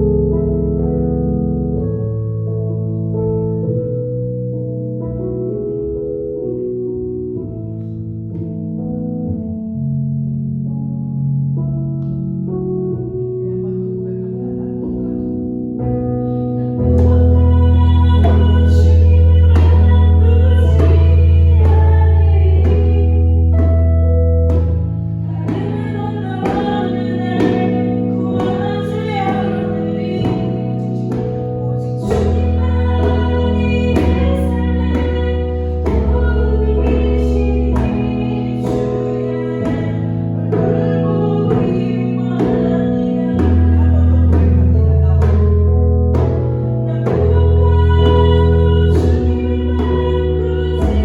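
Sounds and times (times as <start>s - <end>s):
keyboard bass notes: 0.0s - 51.0s
person singing: 13.4s - 23.9s, 24.6s - 51.0s
djembe hand-drum beat: 25.4s - 45.5s.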